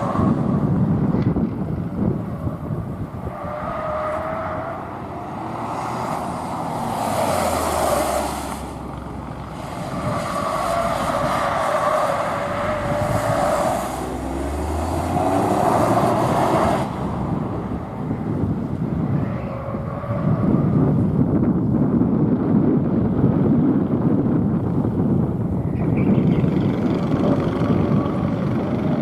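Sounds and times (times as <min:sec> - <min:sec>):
car engine revving hard: 0:09.8 - 0:17.2.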